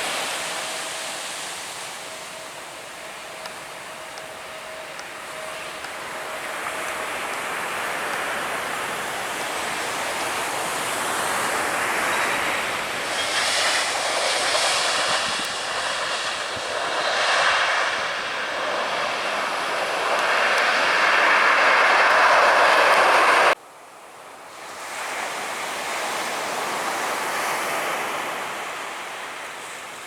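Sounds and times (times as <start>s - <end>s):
jet airliner engines: 0.0s - 23.6s
jet engine whine: 0.0s - 23.6s
surf washing: 0.0s - 23.6s.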